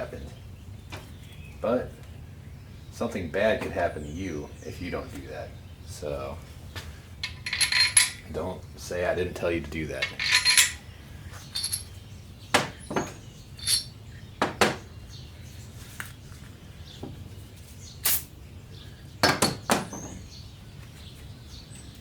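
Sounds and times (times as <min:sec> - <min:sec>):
metal parts clinking: 0:07.2 - 0:08.3, 0:10.0 - 0:10.8, 0:11.4 - 0:12.0, 0:12.9 - 0:14.0.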